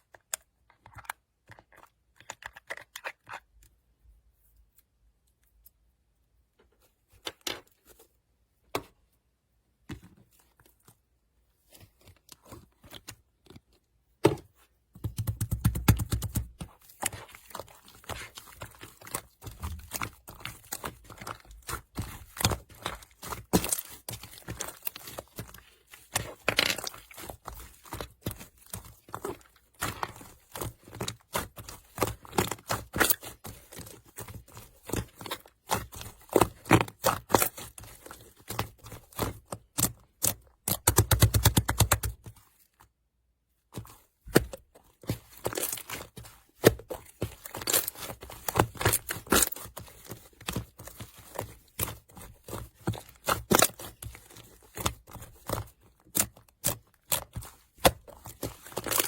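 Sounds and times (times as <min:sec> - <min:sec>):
slime squelching: 0:15.0 - 0:42.8, 0:43.7 - 0:59.0.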